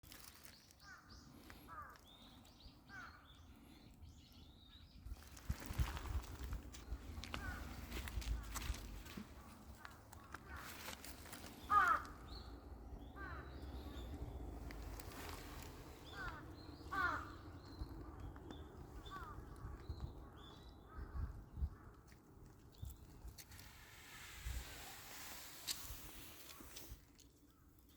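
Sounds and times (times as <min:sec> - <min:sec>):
birds chirping: 0:00.3 - 0:21.7.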